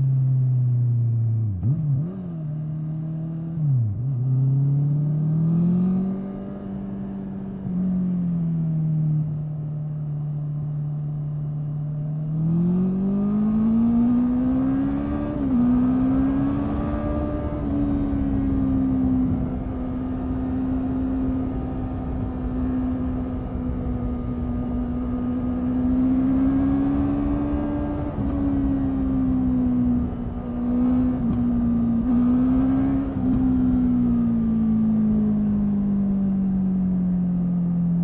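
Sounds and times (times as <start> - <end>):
motorcycle engine accelerating: 11.4 - 38.0.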